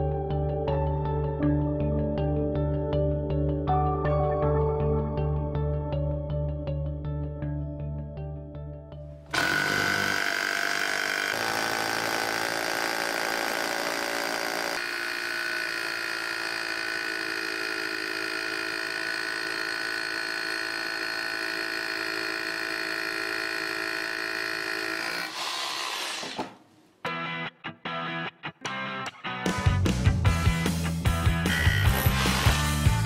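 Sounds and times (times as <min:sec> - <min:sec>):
hammer drill motor whine: 0:09.3 - 0:26.5, 0:31.3 - 0:33.0.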